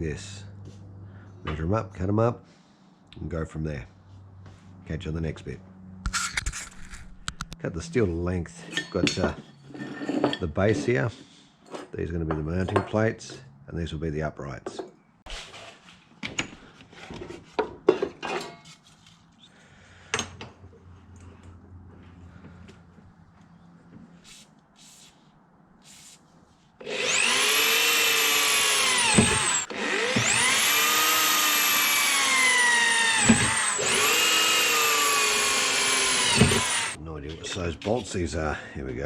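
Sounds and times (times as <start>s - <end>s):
electric drill boring steel: 26.8s - 37.0s.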